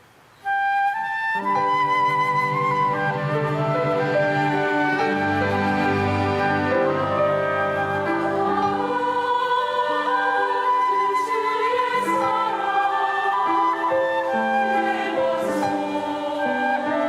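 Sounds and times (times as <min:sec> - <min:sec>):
orchestra playing sustained chords: 0:01.4 - 0:11.0
choir singing: 0:01.4 - 0:17.0.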